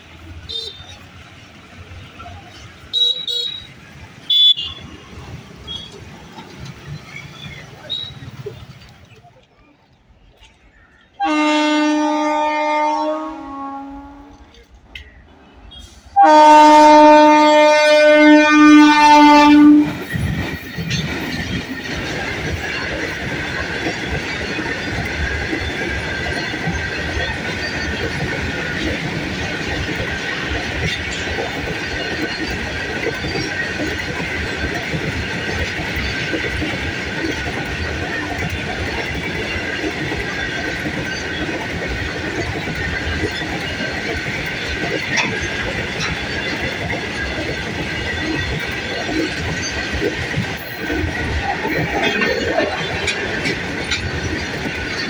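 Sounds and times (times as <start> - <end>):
goods train wagons rolling: 0.0 - 55.0
electric locomotive horn: 2.9 - 3.7, 11.2 - 14.4, 15.7 - 20.0.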